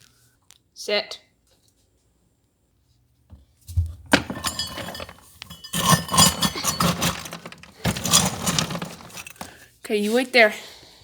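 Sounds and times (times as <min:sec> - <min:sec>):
kibble clattering into bowl: 0:04.1 - 0:09.5.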